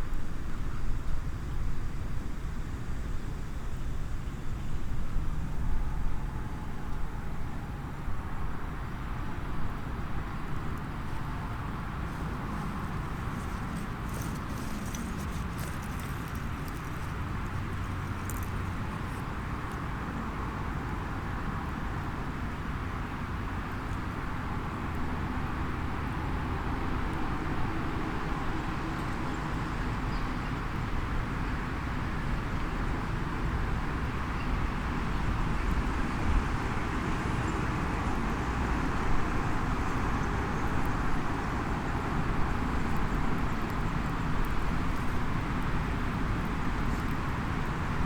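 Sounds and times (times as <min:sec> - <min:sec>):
small wood fire crackling: 0:10.7 - 0:19.3, 0:39.6 - 0:48.0.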